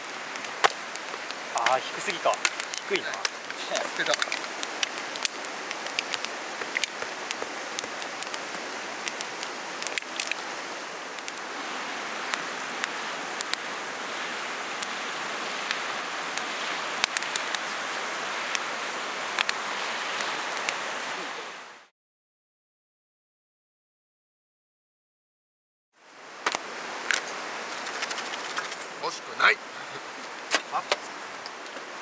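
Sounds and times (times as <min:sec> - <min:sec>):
raindrops ticking on surface: 0:00.0 - 0:11.5, 0:12.2 - 0:13.7, 0:14.6 - 0:20.9
rain falling: 0:00.0 - 0:21.9, 0:26.0 - 0:32.0.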